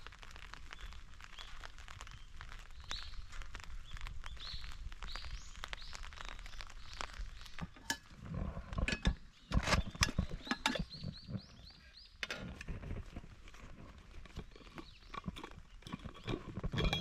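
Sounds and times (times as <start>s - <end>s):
metal cookware clinking: 10.0s - 10.9s, 15.4s - 17.0s.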